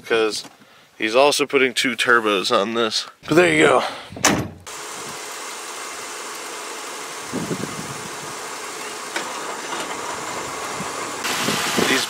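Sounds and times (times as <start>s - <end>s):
car engine idling: 4.6s - 12.0s.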